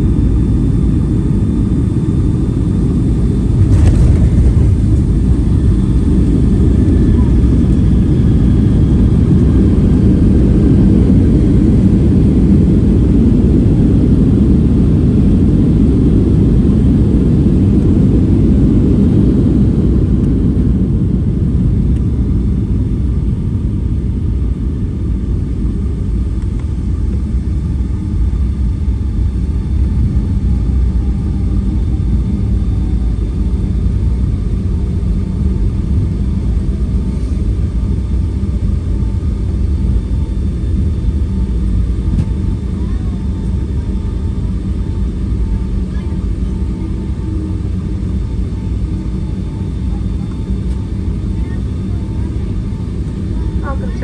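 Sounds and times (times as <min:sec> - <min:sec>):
low rumble of jet engines: 0:00.0 - 0:54.0.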